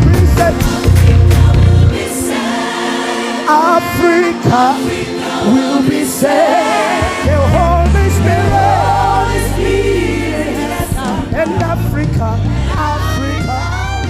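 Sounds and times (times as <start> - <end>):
gospel singing: 0.0 - 14.0
sustained accompaniment: 0.1 - 14.0
deep low notes: 7.2 - 13.8.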